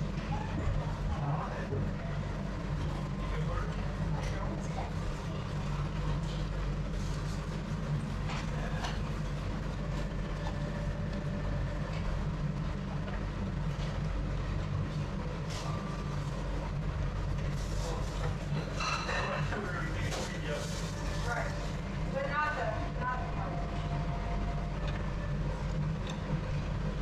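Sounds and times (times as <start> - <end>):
low mechanical rumble: 0.0 - 27.0.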